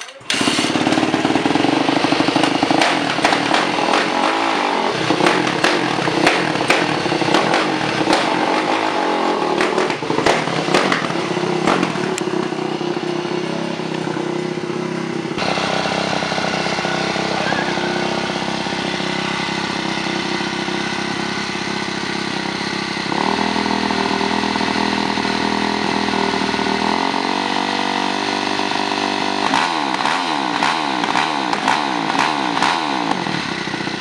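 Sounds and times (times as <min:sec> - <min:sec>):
exhaust pops: 0:00.0 - 0:08.9, 0:09.6 - 0:12.6
dirt bike engine revving: 0:00.2 - 0:34.0.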